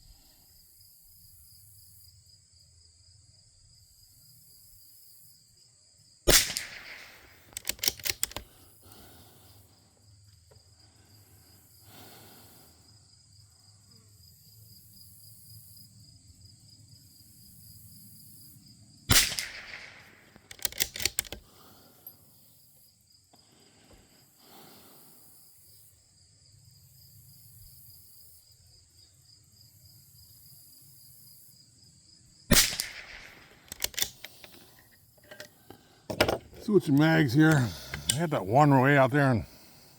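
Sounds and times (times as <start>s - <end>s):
rifle shots: 6.3s - 8.4s, 19.1s - 21.2s, 32.5s - 34.2s
rifle bolt clicking: 6.3s - 8.5s, 19.1s - 21.4s, 32.5s - 35.5s.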